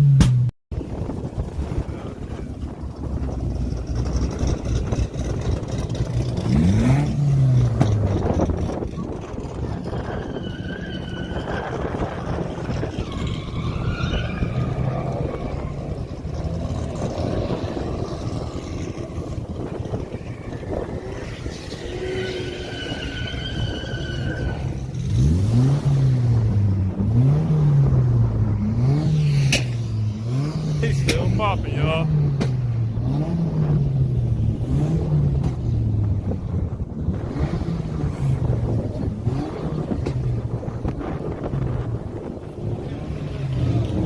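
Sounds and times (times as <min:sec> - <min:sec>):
car engines running: 0:00.0 - 0:44.0
car engine revving: 0:01.4 - 0:44.0
people's voices: 0:30.8 - 0:32.1.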